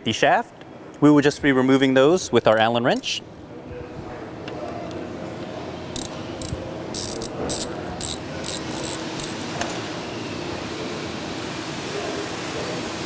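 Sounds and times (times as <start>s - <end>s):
steady background hum: 0.0s - 13.0s
wrench scraping and clicking on screws: 6.0s - 9.4s.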